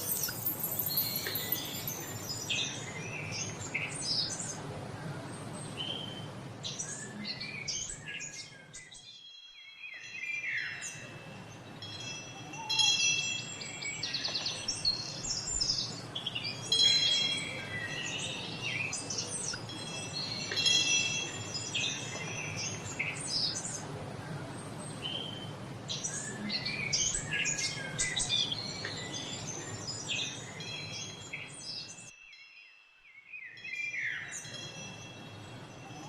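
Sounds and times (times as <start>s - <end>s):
high metal chimes ringing: 0.0s - 3.0s
songbirds chirping and singing: 0.0s - 36.0s.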